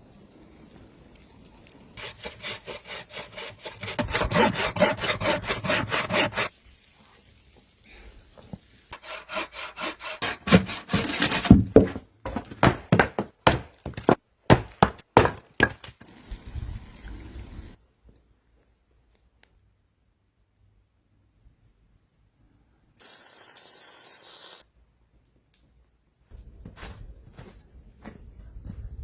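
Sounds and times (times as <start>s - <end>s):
hand saw cutting wood: 2.0s - 6.5s, 8.9s - 15.8s.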